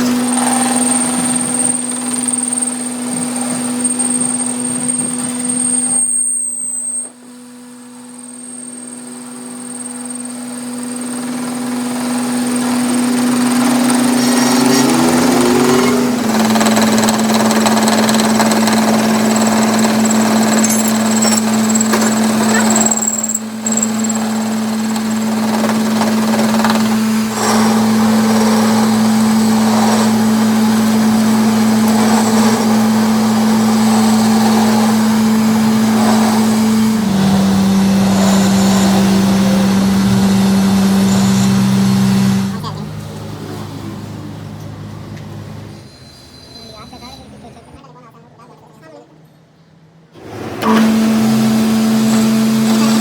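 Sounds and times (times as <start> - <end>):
metal lathe running: 0.0 - 6.2, 9.0 - 46.0, 50.2 - 53.0.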